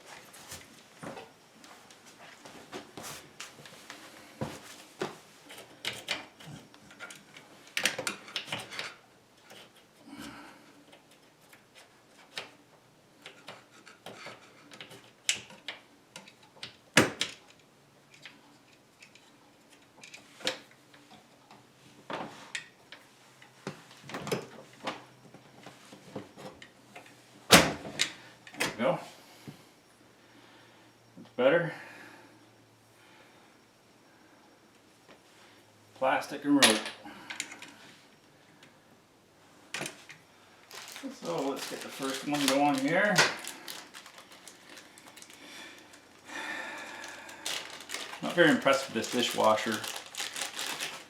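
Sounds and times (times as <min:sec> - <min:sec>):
parts and tools clicking and rattling: 0:05.4 - 0:10.0, 0:13.2 - 0:21.6, 0:36.6 - 0:37.8, 0:39.7 - 0:51.0.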